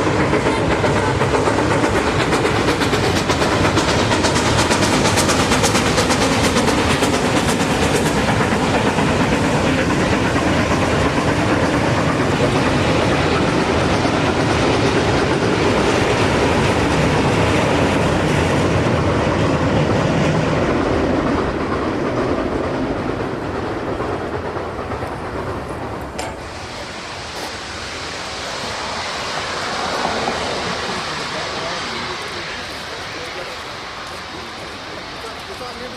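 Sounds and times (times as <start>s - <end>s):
train rolling on rails: 0.0s - 35.9s.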